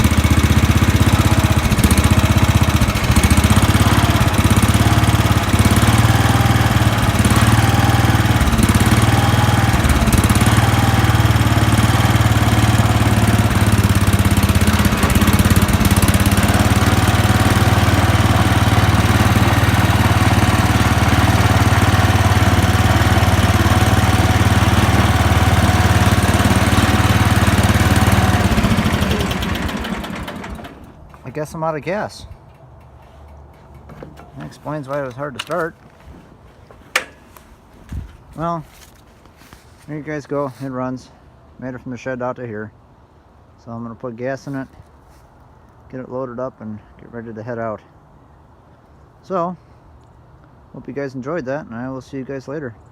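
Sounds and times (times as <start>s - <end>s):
garden tractor engine running: 0.0s - 41.8s.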